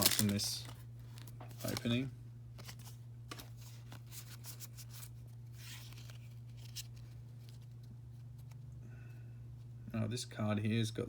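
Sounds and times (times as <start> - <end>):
foil pack tearing and crinkling: 0.0 - 2.0
steady low hum: 0.0 - 11.0.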